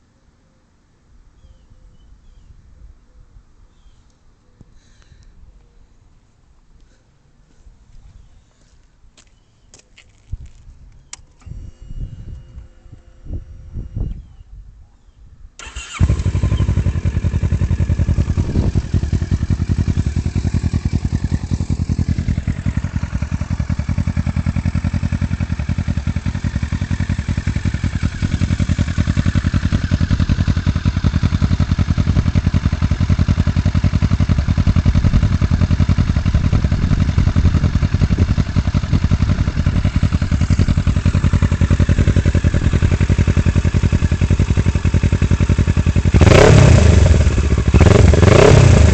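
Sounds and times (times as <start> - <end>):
motorcycle engine starting and idling: 15.6 - 48.9.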